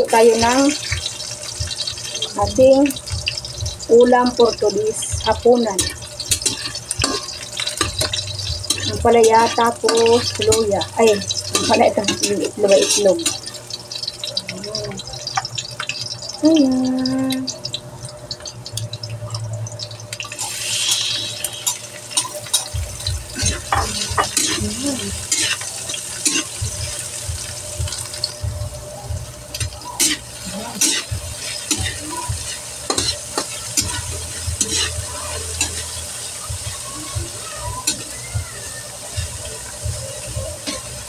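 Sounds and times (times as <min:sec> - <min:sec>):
vegetables sizzling in oil: 0:00.0 - 0:41.0
spatula scraping a wok: 0:23.3 - 0:27.1, 0:29.6 - 0:36.4.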